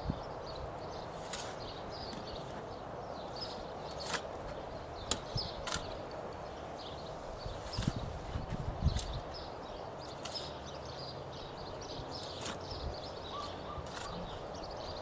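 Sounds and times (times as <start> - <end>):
wind buffeting microphone: 0.0 - 1.0, 4.4 - 6.1, 7.1 - 9.8, 11.8 - 15.0
small birds chirping: 0.0 - 15.0.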